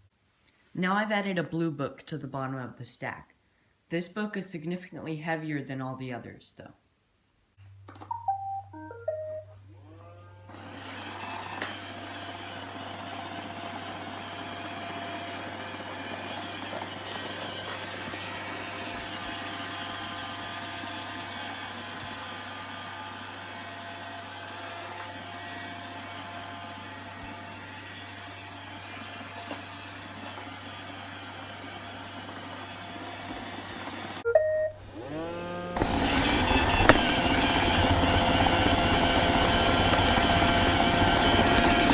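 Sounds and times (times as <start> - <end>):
robot vacuum beeps: 8.1 - 9.5, 34.2 - 34.8
robot vacuum whirring: 9.8 - 41.9.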